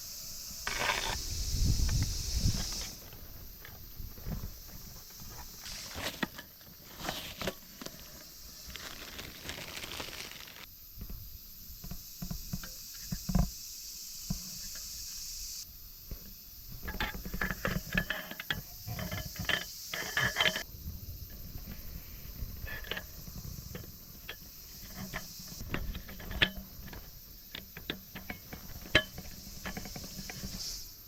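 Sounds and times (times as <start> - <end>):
steady background hiss: 0.0 - 31.0
metal table legs clicking and rattling: 16.9 - 20.6.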